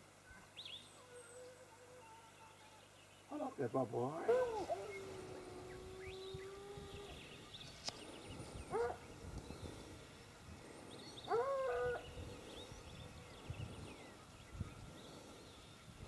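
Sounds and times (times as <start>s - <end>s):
hounds baying and howling: 4.1s - 7.5s, 8.4s - 9.1s, 11.0s - 13.1s.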